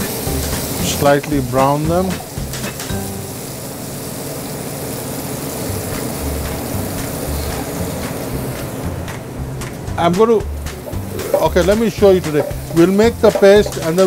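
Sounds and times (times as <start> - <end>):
onion sizzling in a frying pan: 0.0 - 14.0
spatula scraping a pan: 10.8 - 14.0.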